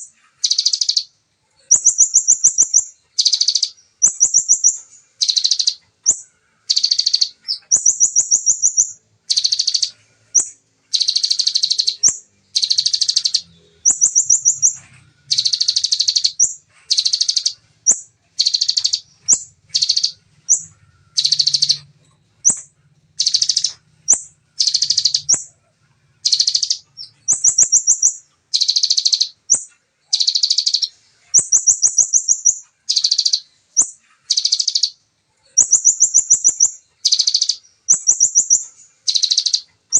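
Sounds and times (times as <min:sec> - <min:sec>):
bird thin trills: 0:00.0 - 0:25.5
bird singing rattling bursts: 0:00.0 - 0:39.9.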